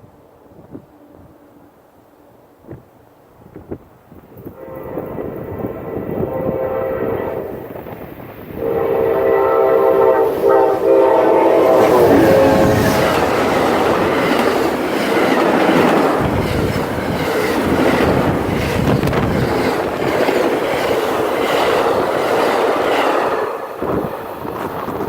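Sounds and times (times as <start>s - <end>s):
passenger train passing: 0.0s - 25.0s
wheels clicking over rail joints: 11.8s - 25.0s.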